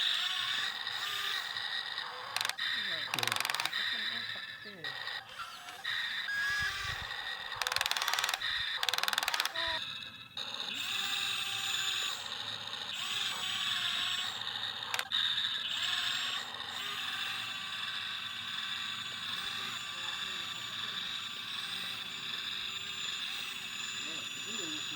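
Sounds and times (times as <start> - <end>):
electric gear motors whining: 0.0 - 24.9
rapid gear clicking: 0.6 - 4.3, 5.2 - 9.8, 14.6 - 15.6.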